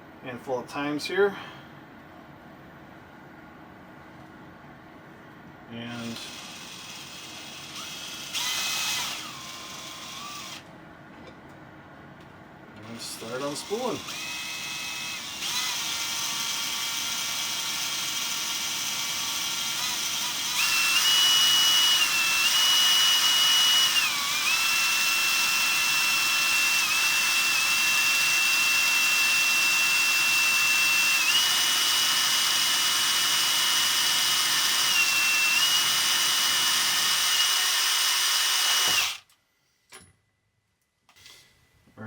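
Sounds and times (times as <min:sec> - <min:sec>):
power drill motor whine: 0:05.9 - 0:10.7, 0:12.9 - 0:39.2.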